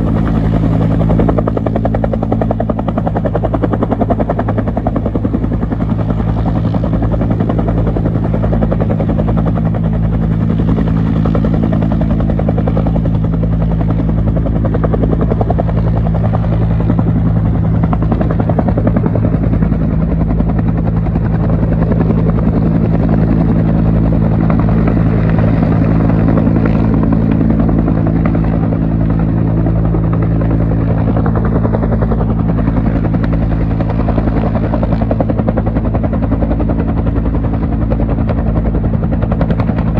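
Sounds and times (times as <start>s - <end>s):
helicopter engine hum: 0.0s - 39.9s
helicopter rotor chopping: 0.0s - 39.9s.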